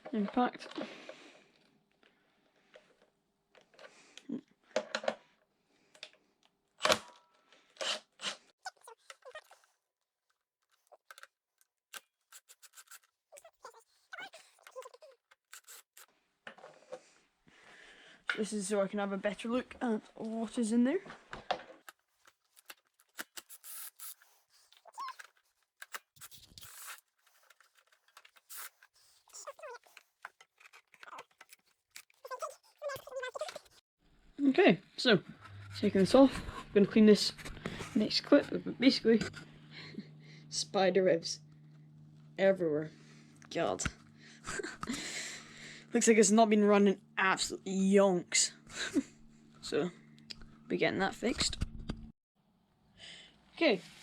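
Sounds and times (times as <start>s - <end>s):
metal parts clicking and scraping: 11.9s - 13.5s, 22.4s - 28.9s, 29.5s - 33.8s.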